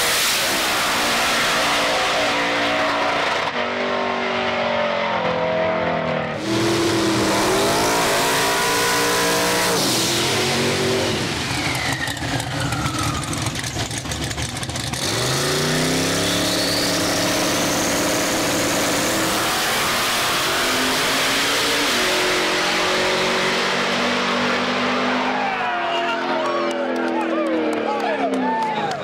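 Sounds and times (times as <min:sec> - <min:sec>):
drag racing engine accelerating: 0:00.0 - 0:28.2
rapid engine crackling: 0:11.5 - 0:15.4.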